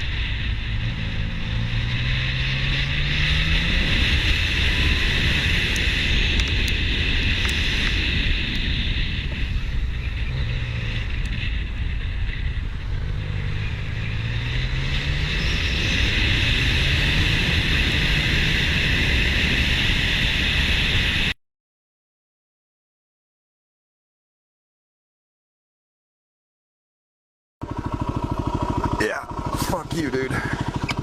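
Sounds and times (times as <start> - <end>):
motorcycle engine drone: 0.0 - 21.4, 27.6 - 31.0.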